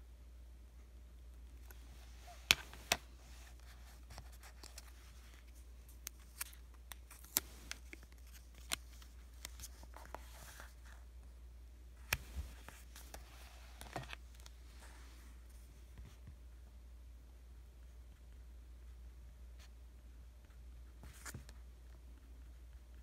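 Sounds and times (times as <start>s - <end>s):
paper stickers peeling and crinkling: 1.6s - 10.8s.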